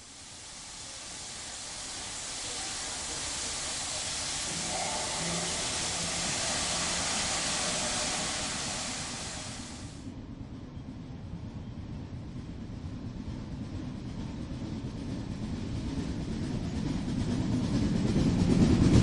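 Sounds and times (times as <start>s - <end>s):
steam locomotive hissing: 0.0s - 10.0s.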